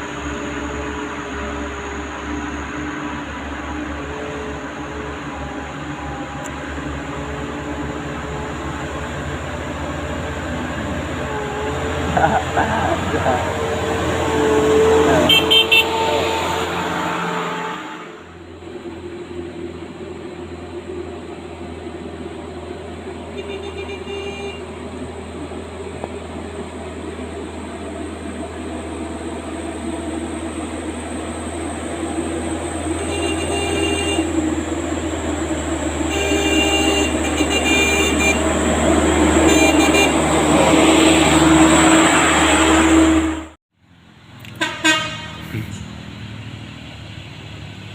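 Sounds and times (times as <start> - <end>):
truck engine running: 0.0 - 17.5, 18.2 - 47.9
truck horn toots: 10.5 - 18.4, 23.2 - 24.9, 32.8 - 34.8, 35.8 - 43.6, 44.5 - 45.9.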